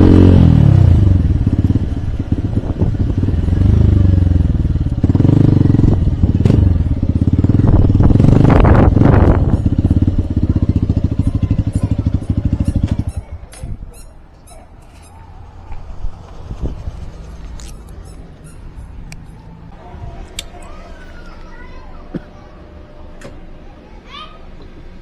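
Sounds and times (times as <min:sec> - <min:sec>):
motorcycle engine revving: 0:00.0 - 0:13.4.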